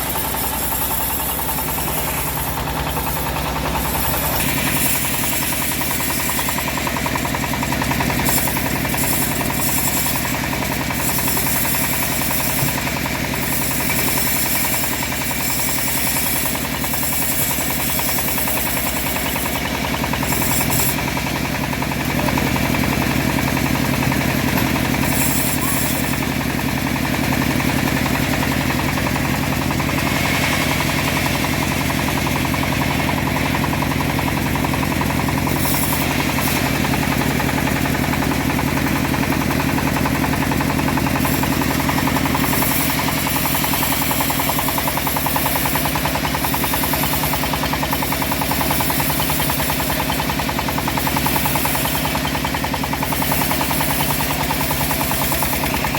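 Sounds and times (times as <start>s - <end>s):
engine-driven bandsaw running: 0.0s - 55.9s.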